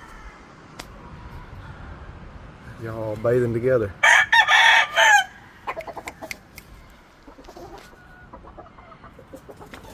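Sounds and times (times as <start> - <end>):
rooster crowing: 4.0 - 6.3
chickens clucking: 5.6 - 9.9
small clicks from chickens: 5.7 - 9.9.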